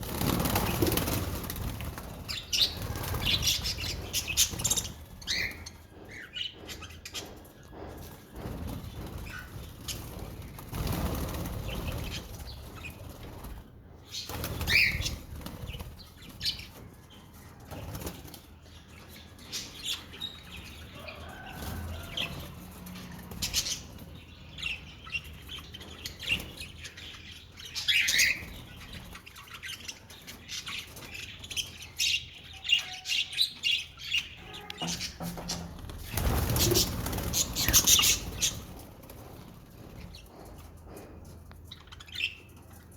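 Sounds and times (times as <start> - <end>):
budgerigars fluttering wings: 0.0 - 5.5, 14.2 - 16.6, 34.9 - 40.2.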